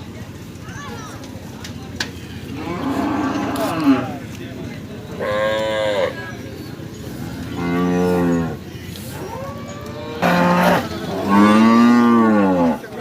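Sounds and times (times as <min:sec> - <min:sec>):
cattle mooing: 0:02.5 - 0:04.2, 0:05.2 - 0:06.2, 0:07.3 - 0:08.6, 0:09.2 - 0:12.9.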